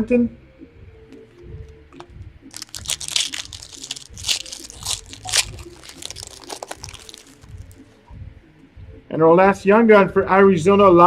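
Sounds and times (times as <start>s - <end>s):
wrapper tearing and crinkling: 2.5s - 7.8s.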